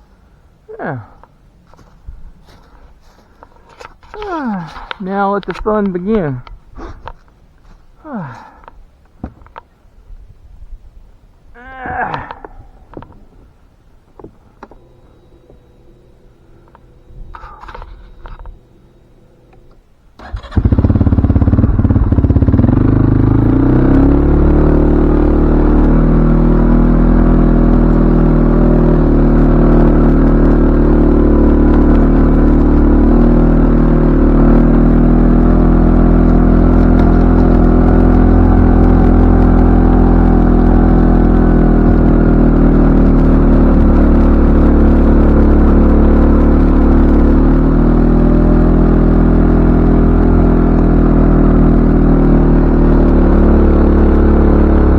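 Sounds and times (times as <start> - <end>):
atv engine running: 14.1 - 54.9.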